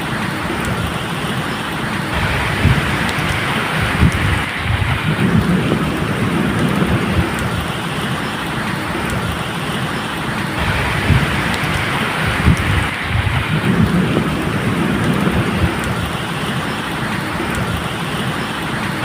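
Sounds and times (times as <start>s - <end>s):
rain falling: 0.0s - 19.0s
low thunder rumbling: 1.9s - 18.3s.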